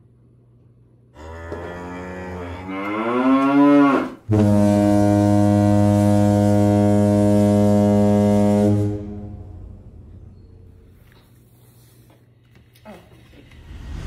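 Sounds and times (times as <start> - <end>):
cow-like moo: 1.2 - 4.2
low horn blast: 1.2 - 10.7.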